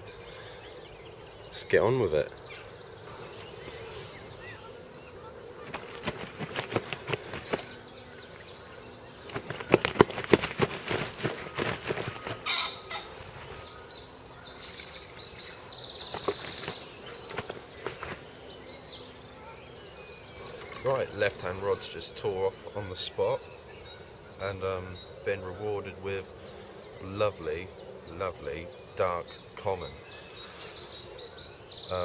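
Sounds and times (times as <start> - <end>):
songbirds trilling: 0.0 - 32.0
sling rustling and clicking: 9.3 - 12.4, 16.0 - 18.3.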